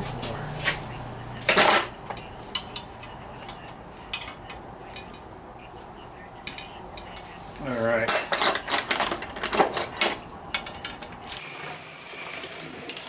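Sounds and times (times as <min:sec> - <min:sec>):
light metallic clinks: 0:11.4 - 0:13.0
metal parts clattering: 0:11.4 - 0:13.0.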